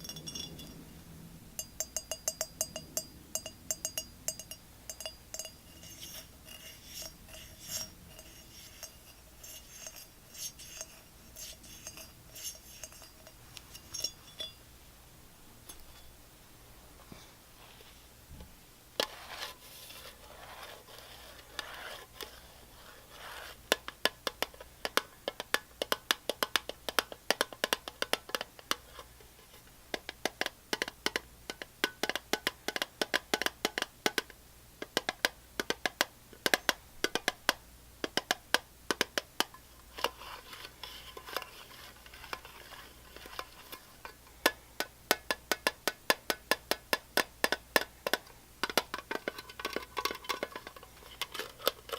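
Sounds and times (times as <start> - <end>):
soft scratching: 5.5 - 14.6, 16.9 - 18.2, 19.0 - 23.6, 39.7 - 44.2.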